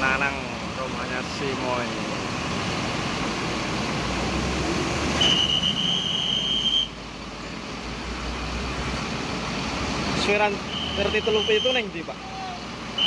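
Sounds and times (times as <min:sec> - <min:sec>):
bus engine rumbling: 0:00.0 - 0:13.0
shrill whistle: 0:05.2 - 0:07.0, 0:10.7 - 0:11.9.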